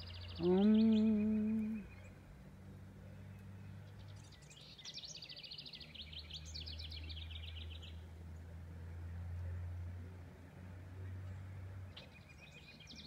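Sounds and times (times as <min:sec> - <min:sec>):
songbird singing rapid high notes: 0:00.0 - 0:02.2
steady low hum: 0:00.0 - 0:03.6.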